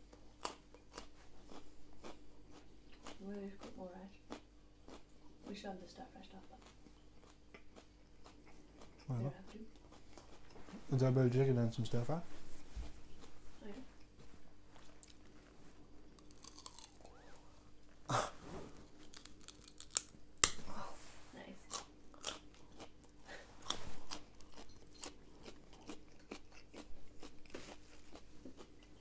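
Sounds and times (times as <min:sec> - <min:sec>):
person crunching raw carrot: 0:16.2 - 0:17.3, 0:19.0 - 0:20.6, 0:21.7 - 0:29.0.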